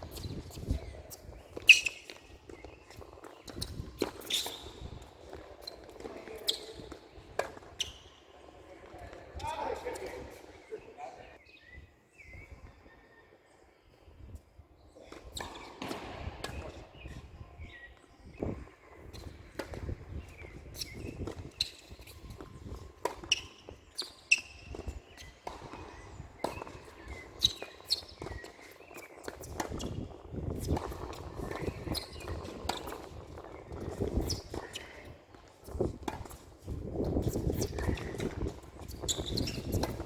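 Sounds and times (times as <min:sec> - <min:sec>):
shoe squeaks: 0:00.0 - 0:10.8, 0:15.0 - 0:40.0
footsteps on court: 0:00.0 - 0:11.4, 0:18.6 - 0:40.0
tennis ball hits and bounces: 0:01.4 - 0:07.8, 0:15.1 - 0:17.1, 0:23.0 - 0:30.0, 0:30.6 - 0:40.0.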